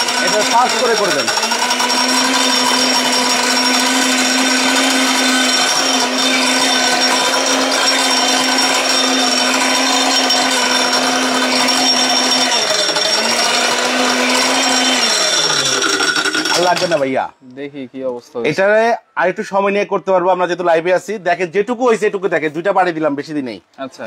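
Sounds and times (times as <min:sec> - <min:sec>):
mixer grinder grinding salt: 0:00.0 - 0:17.1.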